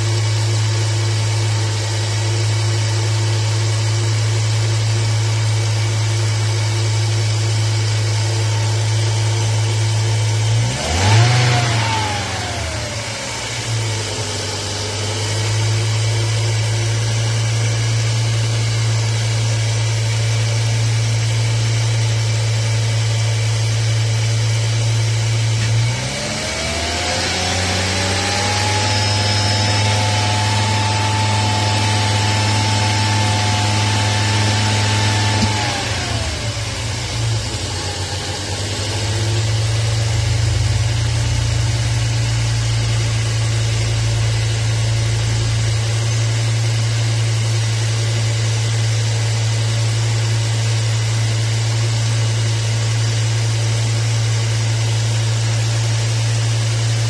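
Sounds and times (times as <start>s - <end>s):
car engine idling: 0.0s - 27.6s, 28.7s - 57.0s
engine revs surging: 9.9s - 14.4s, 25.6s - 46.6s.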